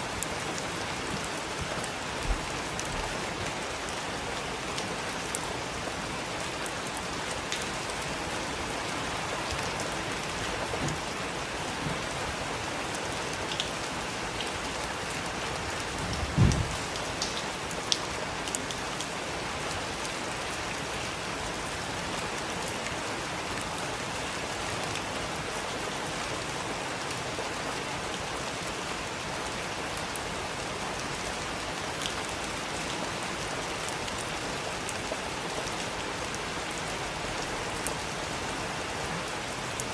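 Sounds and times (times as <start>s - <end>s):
heavy rain: 0.0s - 39.9s
low thump: 16.3s - 16.8s.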